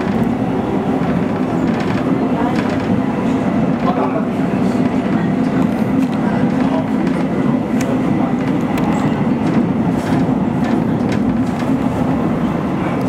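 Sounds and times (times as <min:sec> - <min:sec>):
train wheels and motors rumbling: 0:00.0 - 0:13.0
wheels clicking over track: 0:01.0 - 0:03.0.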